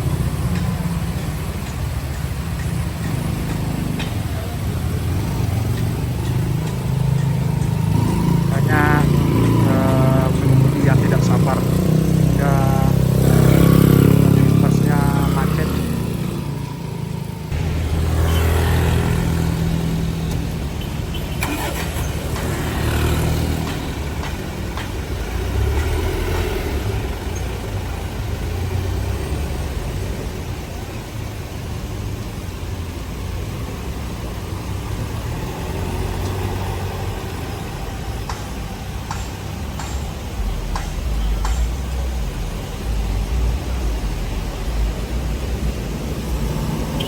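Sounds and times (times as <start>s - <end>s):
vehicle engines revving: 0.0s - 47.0s.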